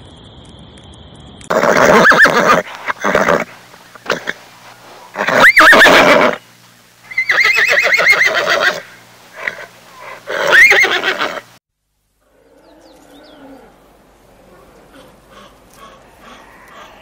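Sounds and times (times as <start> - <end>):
horse whinnying: 1.5 - 4.4, 5.1 - 6.4, 7.1 - 8.8, 9.4 - 11.4.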